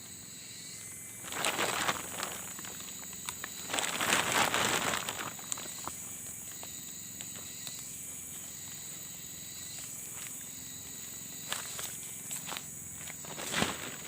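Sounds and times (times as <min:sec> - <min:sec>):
forest background hiss: 0:00.0 - 0:14.0
tent material rustling: 0:01.1 - 0:06.4, 0:11.4 - 0:14.0.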